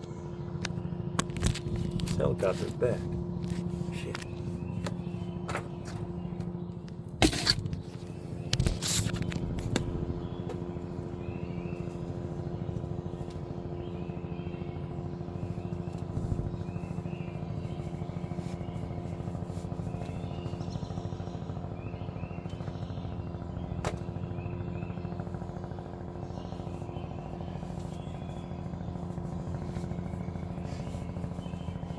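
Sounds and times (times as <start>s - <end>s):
helicopter hovering: 0.0s - 31.9s
sharp knocks and rustles: 7.2s - 10.0s.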